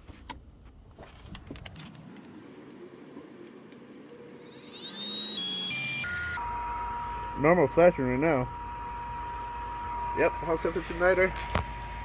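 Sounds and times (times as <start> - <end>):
furnace motor whining: 2.2 - 12.0.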